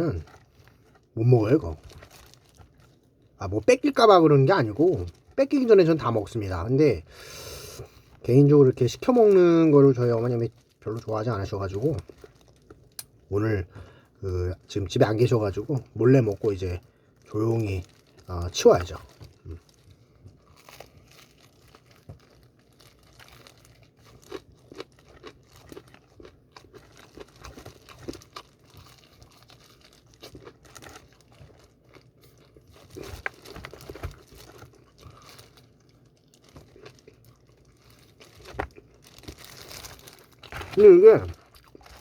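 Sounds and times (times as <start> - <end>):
light crinkling: 0.0 - 3.2, 15.2 - 42.0
crunchy bites and chewing: 15.6 - 42.0.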